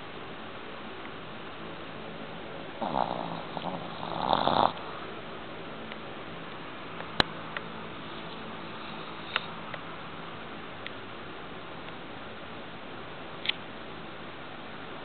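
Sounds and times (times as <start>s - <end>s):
dog snoring: 2.8s - 5.1s, 8.6s - 9.5s.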